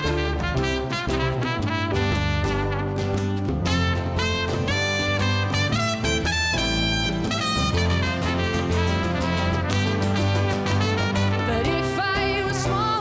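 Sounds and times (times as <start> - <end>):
trumpet melody: 0.0 - 12.3
live band playing: 0.0 - 13.0.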